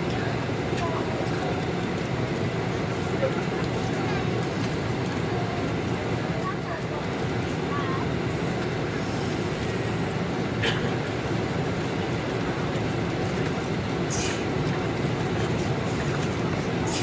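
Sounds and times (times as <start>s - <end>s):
airplane cabin engine rumble: 0.0s - 17.0s
brief hisses: 14.1s - 14.4s.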